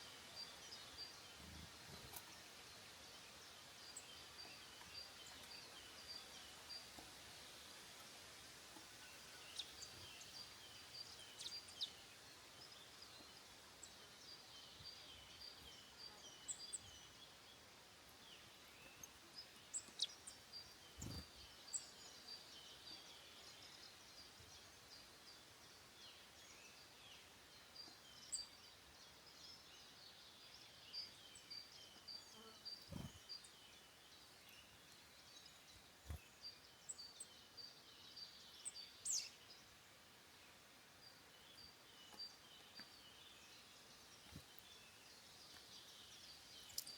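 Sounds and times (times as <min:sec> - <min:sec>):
small birds singing: 0:00.0 - 0:46.9
bird chirps: 0:18.2 - 0:25.4, 0:26.0 - 0:39.7, 0:41.0 - 0:46.9.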